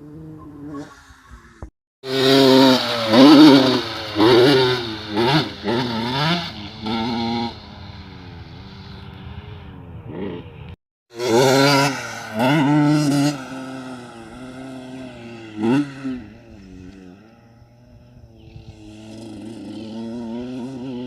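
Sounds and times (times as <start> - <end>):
dirt bike engine revving: 2.0 - 21.0.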